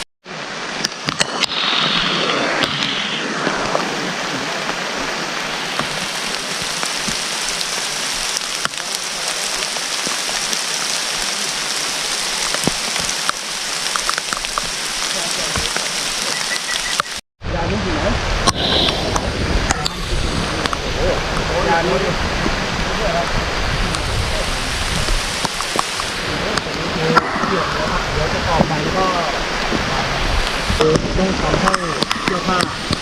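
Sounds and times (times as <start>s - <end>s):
heavy rain: 0.0s - 33.0s
water drips ticking: 5.7s - 17.2s, 25.0s - 27.3s.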